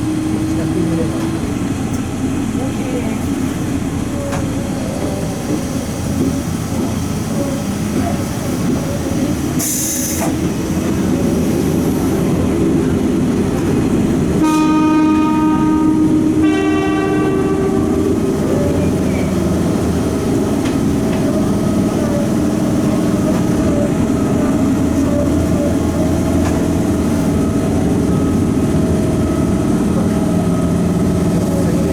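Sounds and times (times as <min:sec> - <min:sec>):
train running on track: 0:00.0 - 0:31.9
train horn blasts: 0:14.4 - 0:19.8.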